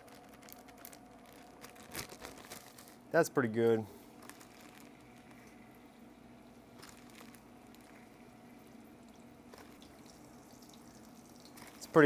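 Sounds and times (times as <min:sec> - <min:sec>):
fish frying in oil: 0:04.6 - 0:12.0.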